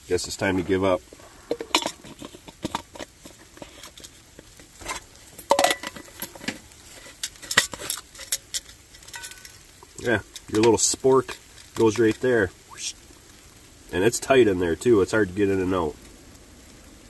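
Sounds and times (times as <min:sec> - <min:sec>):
mess-kit dishes clattering: 0:04.8 - 0:09.6.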